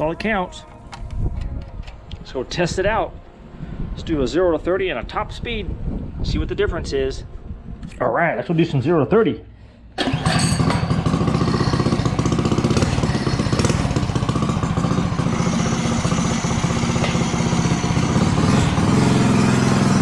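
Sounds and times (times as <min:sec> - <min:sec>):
small engine idling: 0:10.0 - 0:20.0.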